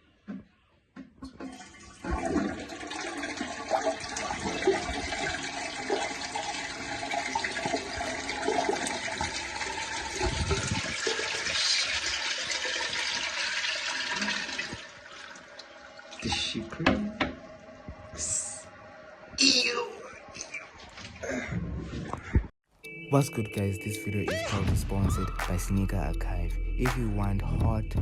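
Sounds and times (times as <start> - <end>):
toilet flushing: 1.2 - 17.9.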